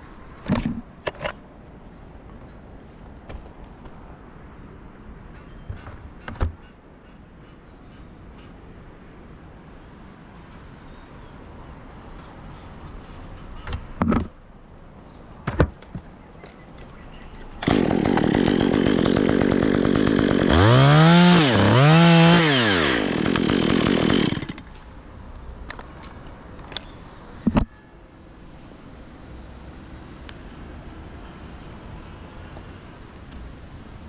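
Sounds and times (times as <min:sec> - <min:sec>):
chainsaw running: 0:17.6 - 0:24.7.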